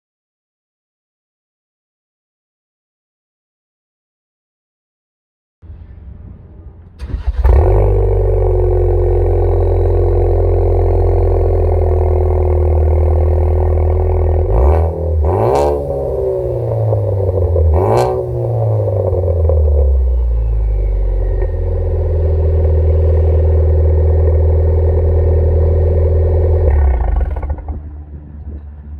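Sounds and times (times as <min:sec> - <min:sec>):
engine revving: 0:06.9 - 0:28.9
car engine idling: 0:07.0 - 0:28.9.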